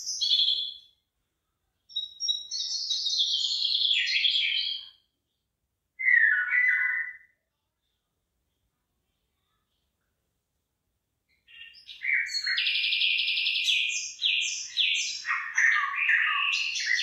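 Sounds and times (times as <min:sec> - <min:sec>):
songbird singing: 0:00.0 - 0:01.0, 0:01.9 - 0:05.1, 0:06.0 - 0:07.4, 0:11.3 - 0:17.0.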